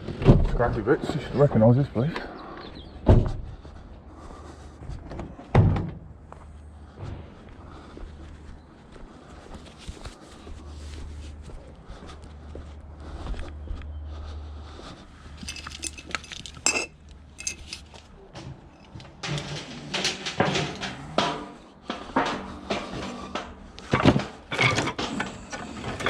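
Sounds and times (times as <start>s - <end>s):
scrap metal clanking: 15.4s - 26.0s.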